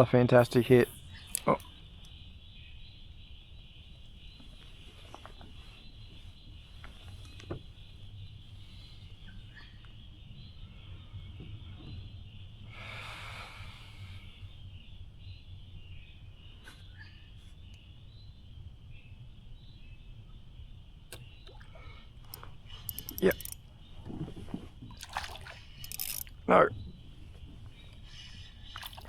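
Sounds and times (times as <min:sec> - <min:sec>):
small ticks: 0:22.2 - 0:23.7, 0:25.8 - 0:26.3
sharp click: 0:22.3 - 0:23.6.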